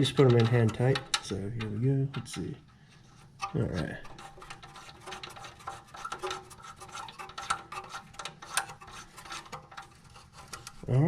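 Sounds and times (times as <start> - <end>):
metal clicks and scraping: 0.0 - 10.9.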